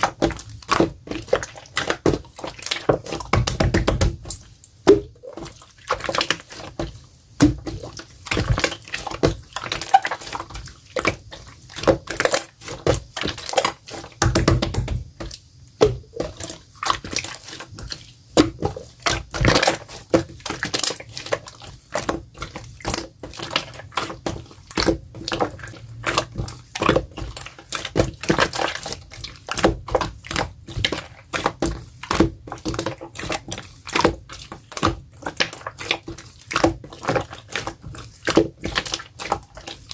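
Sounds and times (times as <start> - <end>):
slime squelching and popping: 0.0 - 39.9.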